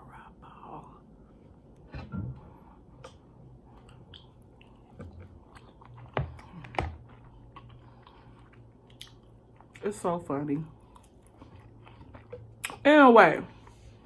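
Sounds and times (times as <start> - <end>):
chewing with wet mouth clicks: 3.0 - 9.9, 10.8 - 12.9.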